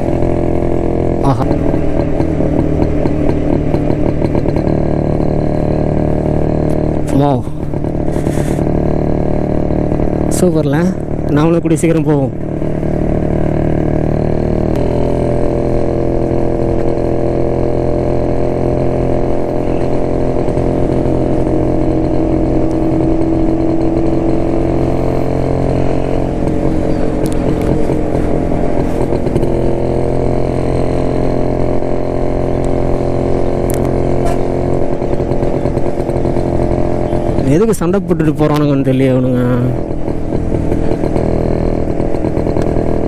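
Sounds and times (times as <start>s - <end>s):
motorcycle two-stroke engine running: 0.0s - 43.0s.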